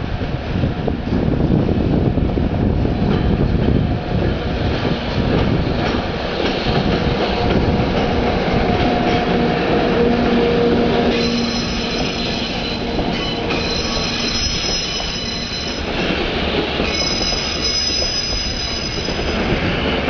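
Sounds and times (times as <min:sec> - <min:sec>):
train wheels rumbling on rails: 0:00.0 - 0:20.0
wheels squealing: 0:11.1 - 0:15.9, 0:16.8 - 0:19.4.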